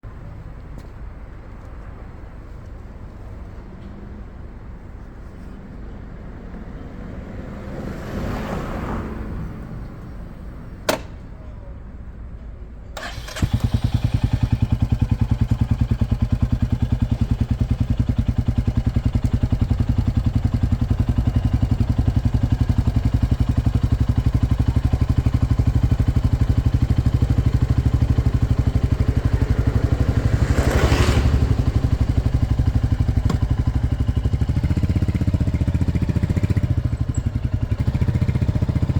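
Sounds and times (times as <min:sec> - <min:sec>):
sharp click: 0:10.8 - 0:11.3
motorcycle engine running: 0:13.0 - 0:38.9.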